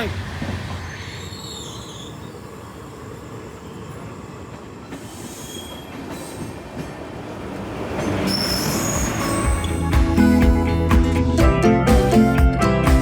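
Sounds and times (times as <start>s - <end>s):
train rumbling and rattling on rails: 0.0s - 11.4s
high-pitched wheel squeal: 0.7s - 2.6s, 8.0s - 10.4s.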